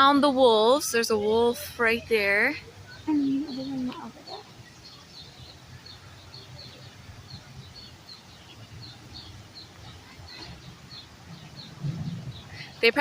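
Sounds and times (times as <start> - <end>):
small birds chirping: 0.0 - 13.0
low outdoor rumble: 7.0 - 13.0.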